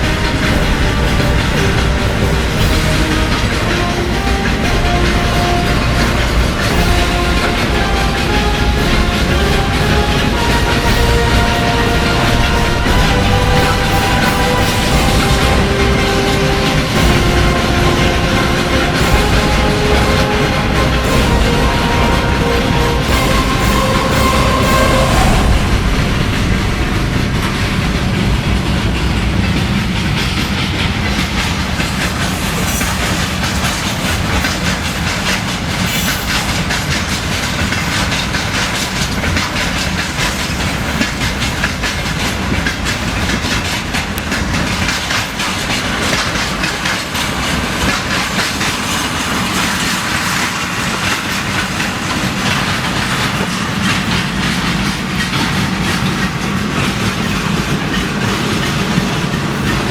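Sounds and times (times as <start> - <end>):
train rumble: 0.0 - 59.9
train wheels clicking over rail joints: 0.0 - 59.9.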